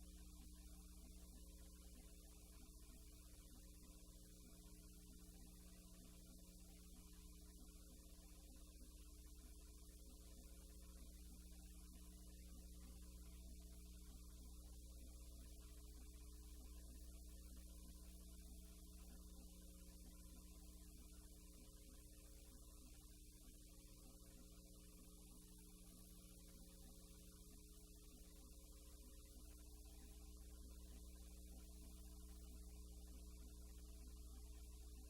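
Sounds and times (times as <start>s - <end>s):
electrical mains hum: 0.0s - 35.0s.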